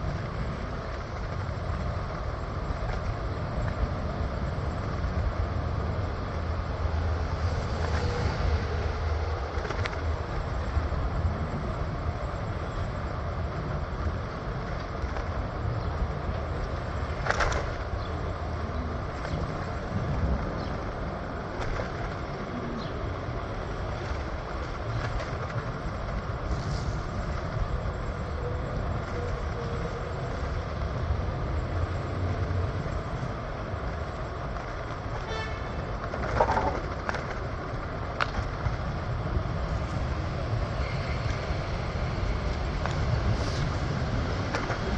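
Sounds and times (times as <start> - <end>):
train rumbling on rails: 0.0 - 44.9
sharp rail clicks: 14.0 - 44.9.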